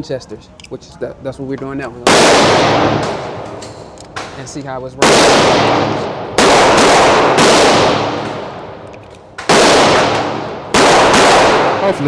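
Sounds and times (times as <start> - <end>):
pistol firing rapid bursts: 2.0 - 3.6, 5.0 - 8.7, 9.4 - 12.0.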